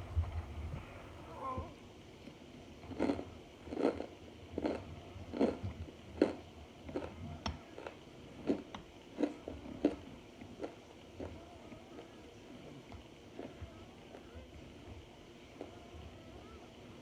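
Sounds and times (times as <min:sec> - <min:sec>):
crunchy chewing: 0:02.9 - 0:11.4.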